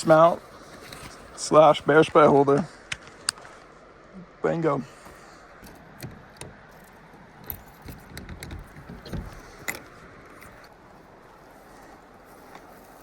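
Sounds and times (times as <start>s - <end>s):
metal gear clicking and clinking: 5.6s - 10.7s.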